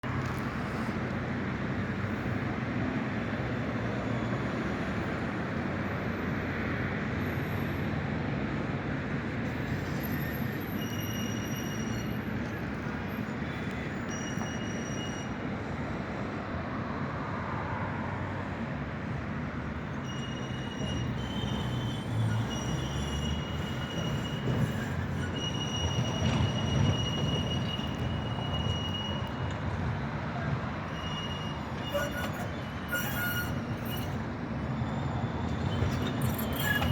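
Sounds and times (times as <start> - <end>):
tram rolling: 0.0 - 36.9
high-pitched wheel squeal: 3.5 - 5.3, 7.2 - 8.0, 9.4 - 15.8, 19.8 - 36.9.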